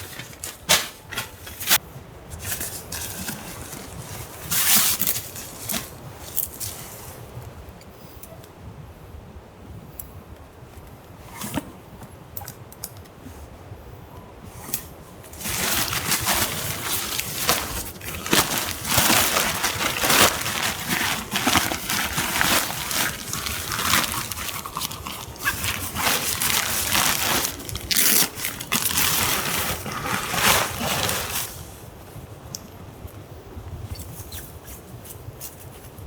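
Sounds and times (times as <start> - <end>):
close rustling and scraping: 0.0 - 7.5, 14.4 - 32.2.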